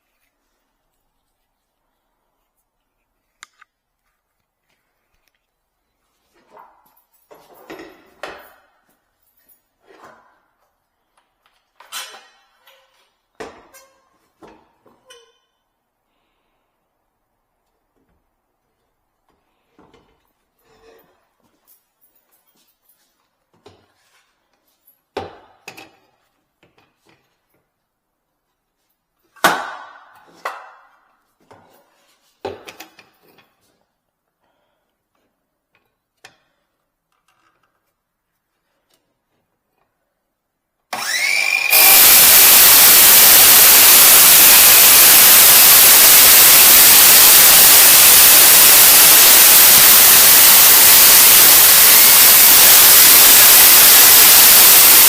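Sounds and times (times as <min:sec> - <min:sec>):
circular saw cutting: 0:41.0 - 0:55.0.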